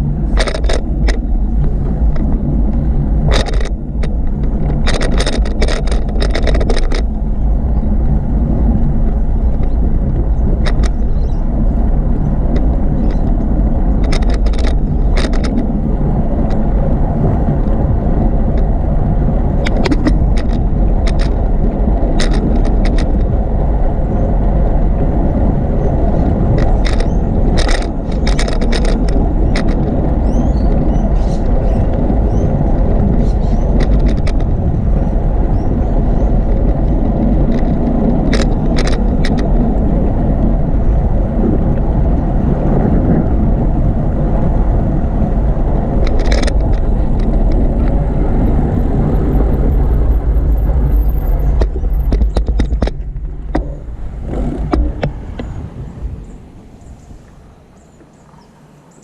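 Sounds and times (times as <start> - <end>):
sharp rattling clicks: 0.0 - 8.2, 8.8 - 16.7, 19.6 - 23.4, 26.1 - 39.9, 45.6 - 55.5
wind and bicycle rolling noise: 0.0 - 59.0.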